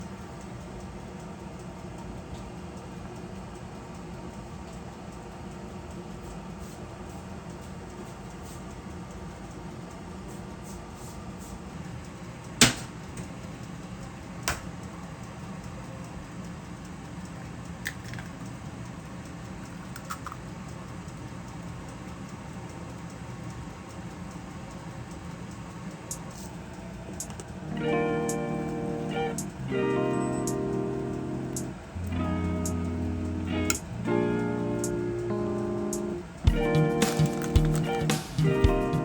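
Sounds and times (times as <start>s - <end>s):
faint clicks: 12.0s - 39.0s
steady low hum: 20.5s - 39.0s.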